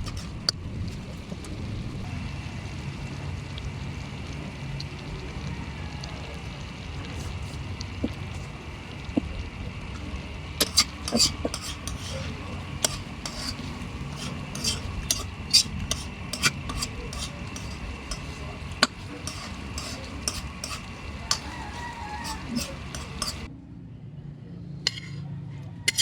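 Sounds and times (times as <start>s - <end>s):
utensil clinking in a pan: 0.0s - 0.6s, 9.8s - 23.5s
steady low hum: 0.0s - 25.2s.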